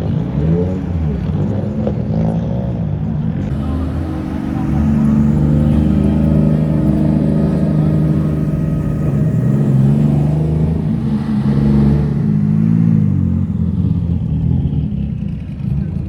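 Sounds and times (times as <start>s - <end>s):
car engine running: 3.5s - 15.4s.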